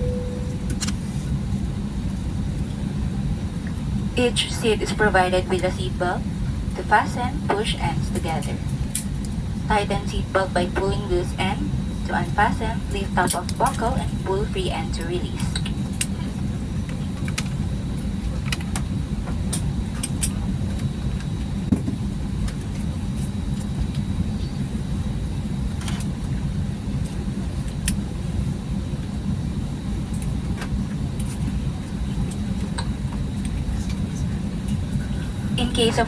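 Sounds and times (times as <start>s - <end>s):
faint high whine: 0.0s - 1.4s
aircraft cabin rumble: 0.0s - 36.0s.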